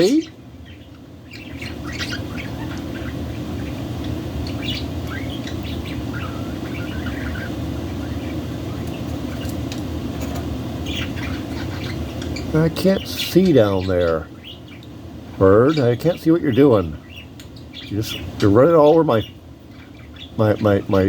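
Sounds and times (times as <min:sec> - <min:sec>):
budgerigars chirping: 0:00.0 - 0:09.8, 0:10.7 - 0:21.0
low background hum: 0:00.0 - 0:21.0.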